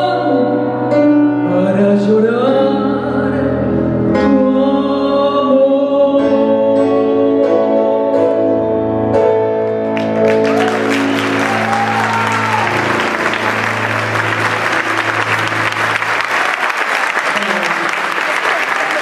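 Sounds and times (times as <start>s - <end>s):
tango song held chord: 0.0s - 16.7s
audience applause: 10.0s - 19.0s.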